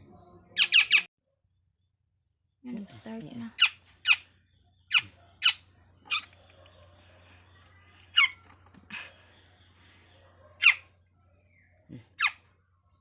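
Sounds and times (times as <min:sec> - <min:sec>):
bird chirping shrilly: 0:00.6 - 0:01.1, 0:08.2 - 0:08.4, 0:10.6 - 0:10.8.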